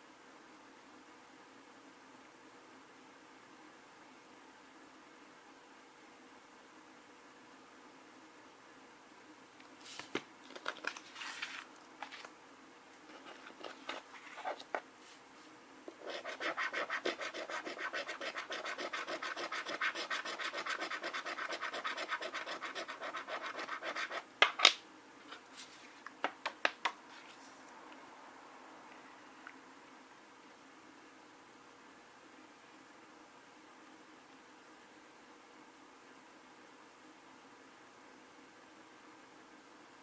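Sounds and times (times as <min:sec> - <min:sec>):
coin scratching lottery ticket: 0:16.0 - 0:24.2.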